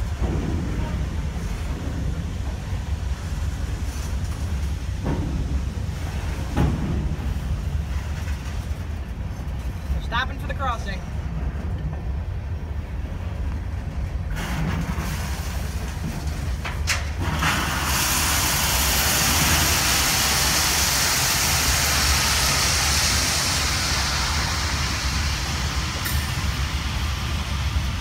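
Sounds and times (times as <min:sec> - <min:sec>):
train rumbling past: 0:00.0 - 0:28.0
loud rushing hiss: 0:14.2 - 0:28.0.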